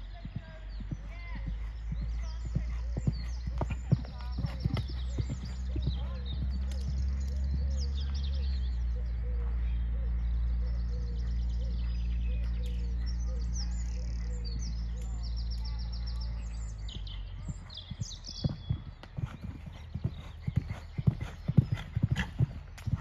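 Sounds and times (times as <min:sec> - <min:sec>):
small birds chirping: 0:00.0 - 0:23.0
steady low drone: 0:00.0 - 0:23.0.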